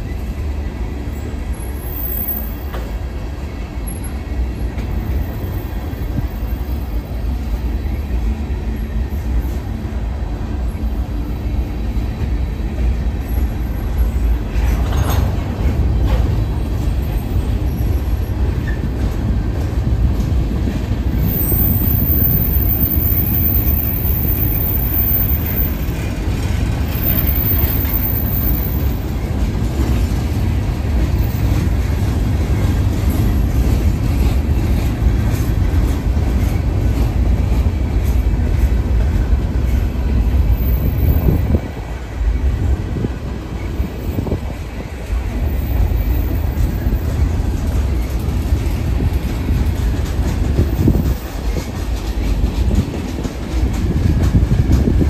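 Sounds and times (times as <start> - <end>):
freight train rumbling past: 0.0 - 55.0
wheel clatter on rails: 12.2 - 41.8, 43.0 - 55.0.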